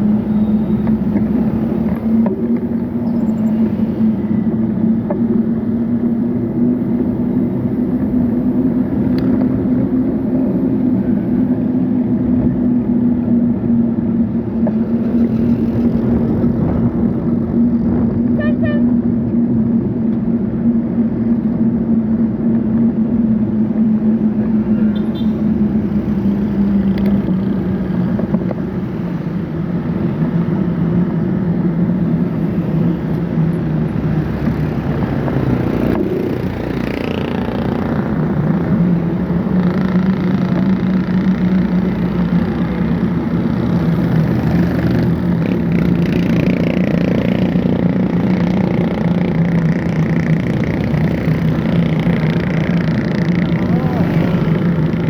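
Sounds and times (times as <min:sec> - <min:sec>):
road and wind noise: 0:00.0 - 0:55.0.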